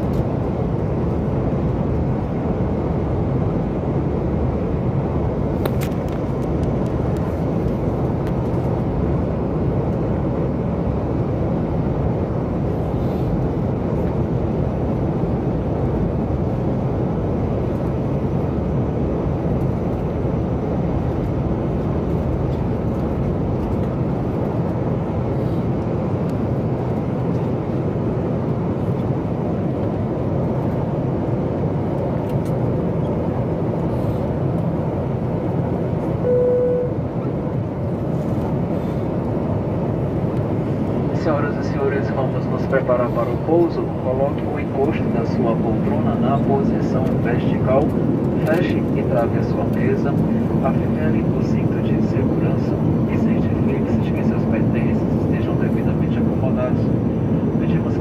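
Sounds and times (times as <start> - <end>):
airplane cabin noise: 0.0 - 58.0.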